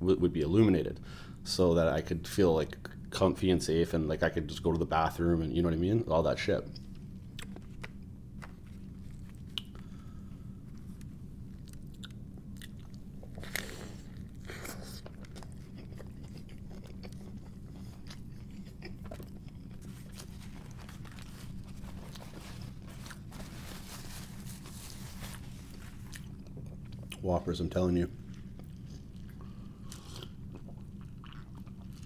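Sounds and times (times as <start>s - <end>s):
steady low hum: 0.0s - 32.0s
person chewing a burger: 6.8s - 27.2s, 28.1s - 32.0s.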